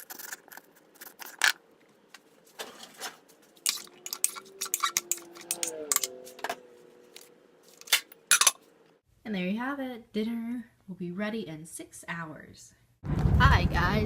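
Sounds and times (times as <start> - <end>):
utensils and dishes clinking: 2.6 - 6.2, 7.8 - 8.6.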